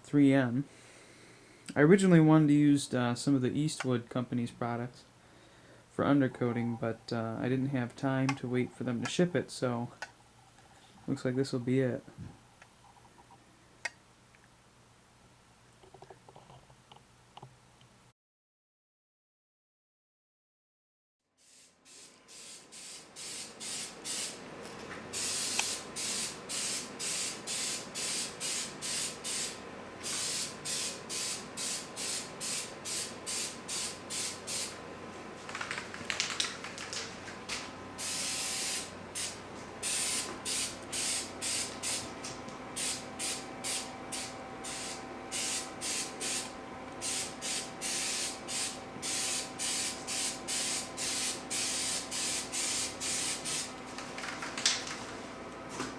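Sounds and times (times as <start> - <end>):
aerosol can spraying bursts: 21.4 - 24.4, 25.1 - 34.8, 38.0 - 42.1, 42.8 - 53.7.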